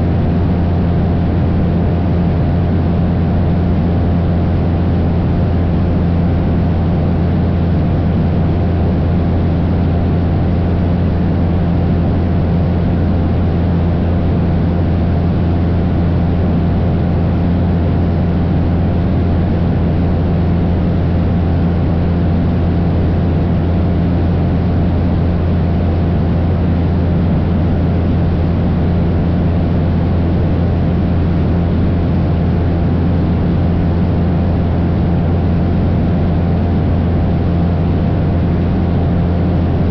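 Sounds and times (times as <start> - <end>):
airplane engine and propeller droning: 0.0 - 39.9.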